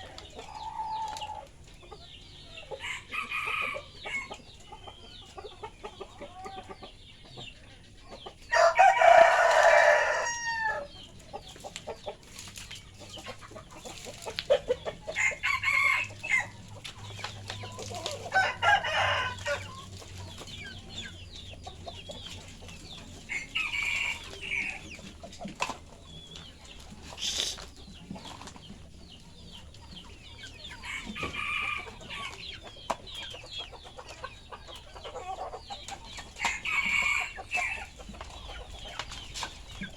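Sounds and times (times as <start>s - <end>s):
chickens clucking: 0.0s - 39.9s
roosters crowing: 2.5s - 4.6s, 8.4s - 11.1s, 14.0s - 28.5s, 29.4s - 39.9s.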